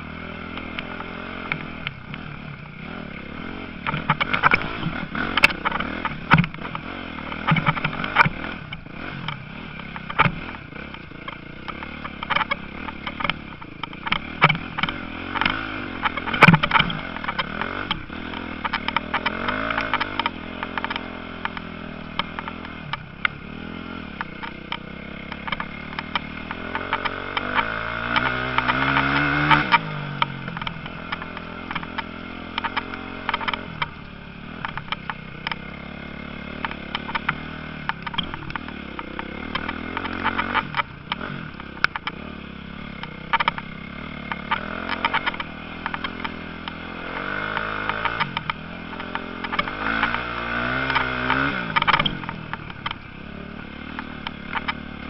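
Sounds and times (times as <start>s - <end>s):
motocross motorcycles revving: 0.0s - 55.0s
motorcycle passing by: 14.1s - 55.0s.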